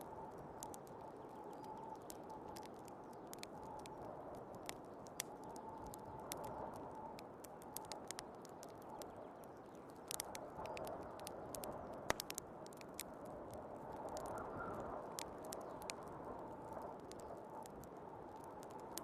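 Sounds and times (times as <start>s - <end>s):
wood fire crackling and popping: 0.0s - 19.0s
storm wind hissing and whistling: 10.0s - 19.0s.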